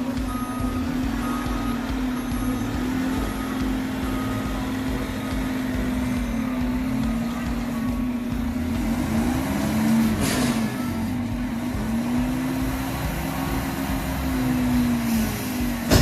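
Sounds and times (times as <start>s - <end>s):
garbage truck engine running: 0.0s - 16.0s.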